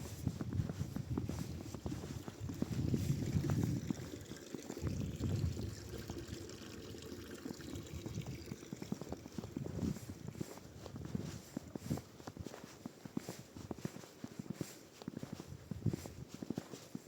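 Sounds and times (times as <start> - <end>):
water pouring and trickling: 2.2 - 10.3.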